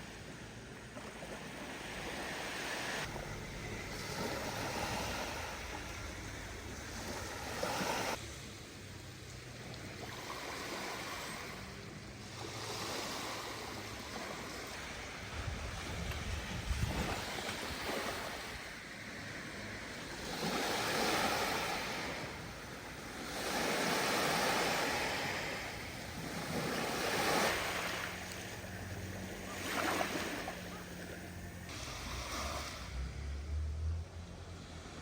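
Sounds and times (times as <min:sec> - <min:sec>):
faint steady hum: 0:00.0 - 0:35.0
sea waves washing in: 0:00.0 - 0:35.0.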